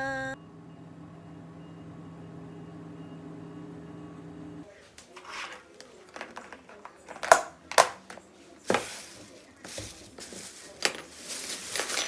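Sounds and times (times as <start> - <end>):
rustling handling noise: 4.7 - 12.0.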